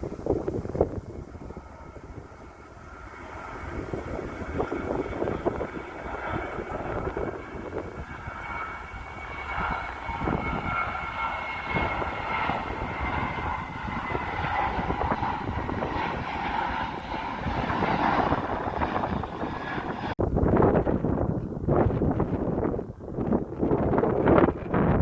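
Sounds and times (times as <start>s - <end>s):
jet airliner engines whining: 0.0s - 20.2s
wind buffeting microphone: 0.0s - 25.0s.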